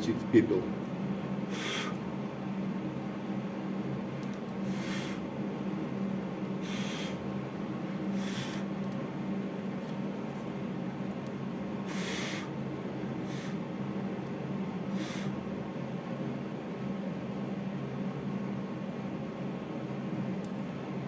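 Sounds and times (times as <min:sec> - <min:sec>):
steady low hum: 0:00.0 - 0:21.0
person blowing puffs of breath: 0:01.5 - 0:02.0, 0:04.6 - 0:05.2, 0:06.6 - 0:07.2, 0:08.1 - 0:08.7, 0:11.9 - 0:12.5, 0:13.3 - 0:13.6, 0:14.9 - 0:15.4.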